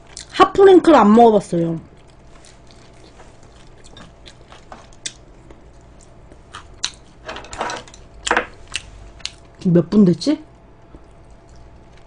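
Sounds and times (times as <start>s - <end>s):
person chewing food: 1.9s - 7.2s, 7.9s - 9.6s, 10.7s - 12.0s.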